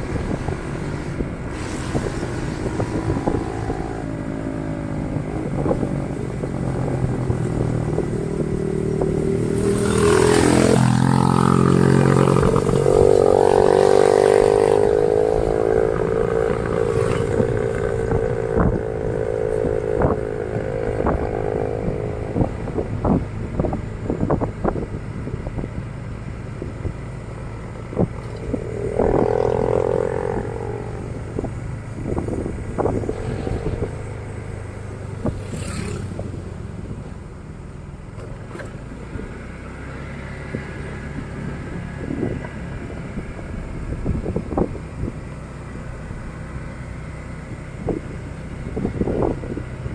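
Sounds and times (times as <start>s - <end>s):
motorcycle engine running: 0.0s - 38.1s
engine knocks and clatter: 0.0s - 49.9s.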